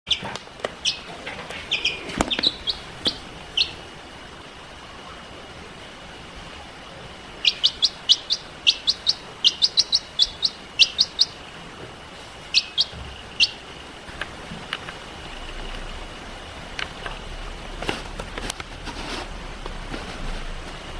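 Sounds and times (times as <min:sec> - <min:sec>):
baby chicks peeping: 0:00.1 - 0:04.3, 0:06.4 - 0:16.1.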